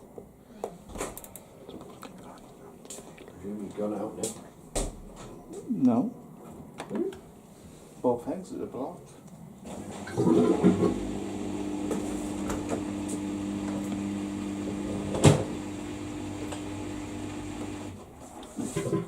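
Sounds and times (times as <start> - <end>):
appliance motor hum: 9.7 - 18.1.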